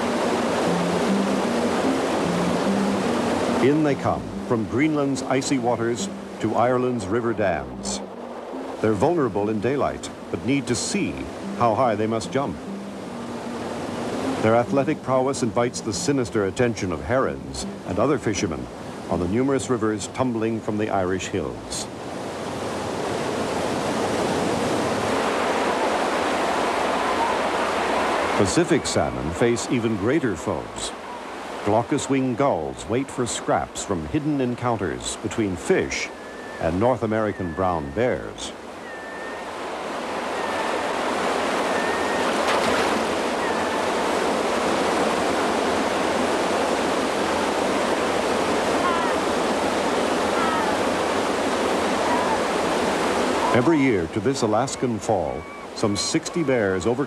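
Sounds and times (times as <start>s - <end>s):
waterfall roaring: 0.0s - 19.8s, 22.4s - 57.0s
brief high calls: 38.8s - 44.0s.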